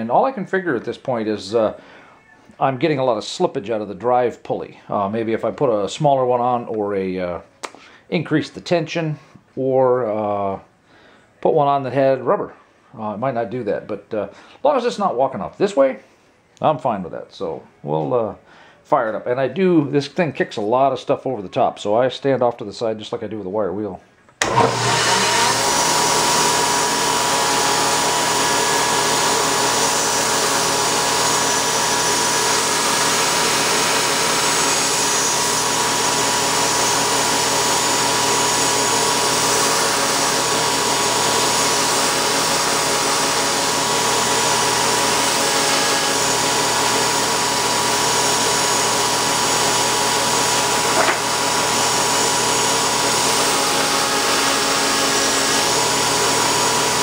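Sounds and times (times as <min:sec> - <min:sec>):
belt grinder whirring: 0:24.4 - 0:57.0.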